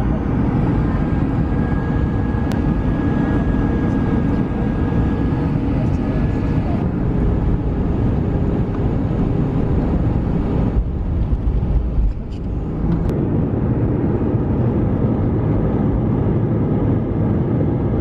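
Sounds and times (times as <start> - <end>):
jet airliner cabin rumble: 0.0 - 18.0.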